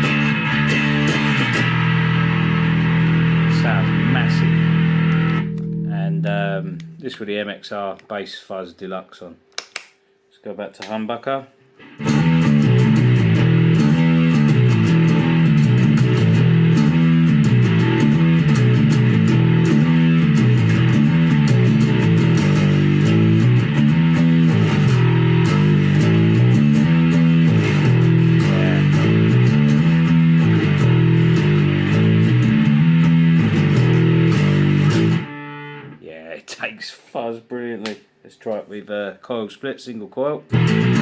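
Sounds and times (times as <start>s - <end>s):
fuzzy distorted bass riff: 0.0s - 7.5s, 11.8s - 36.3s, 40.5s - 41.0s.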